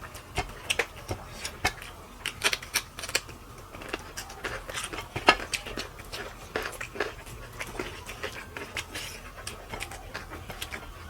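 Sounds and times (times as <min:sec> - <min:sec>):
chewing and food handling clicks: 0:00.0 - 0:11.0.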